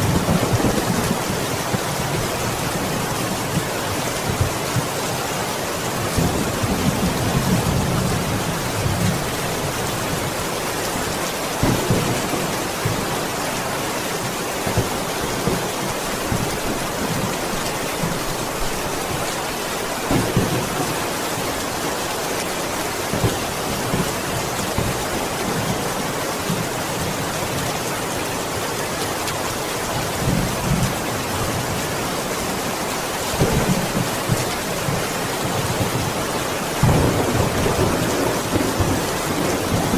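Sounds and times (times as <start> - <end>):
steady rain: 0.0 - 39.9
low rolls of thunder: 36.8 - 39.9.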